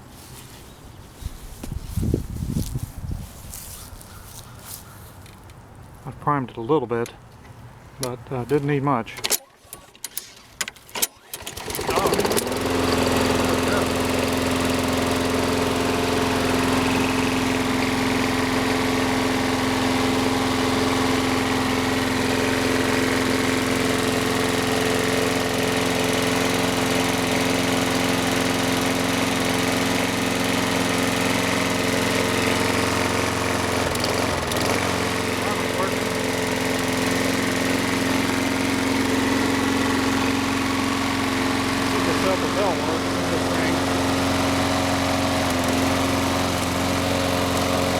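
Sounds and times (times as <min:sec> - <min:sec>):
lawn mower engine running: 0:00.1 - 0:00.7, 0:10.1 - 0:47.9.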